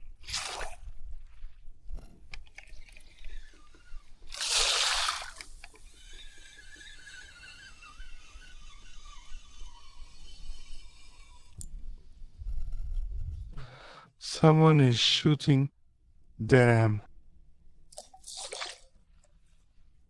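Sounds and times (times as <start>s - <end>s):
water sloshing and dripping: 17.9s - 19.3s.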